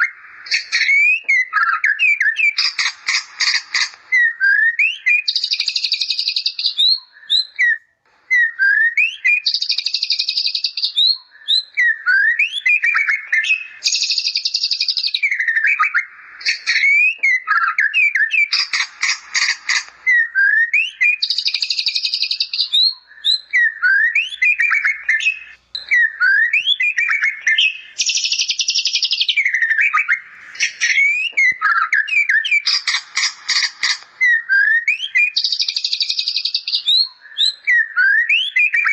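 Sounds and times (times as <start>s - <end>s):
buzzy bird trills: 0.0s - 6.6s, 12.6s - 22.7s, 23.6s - 36.7s
bird singing: 0.0s - 38.9s.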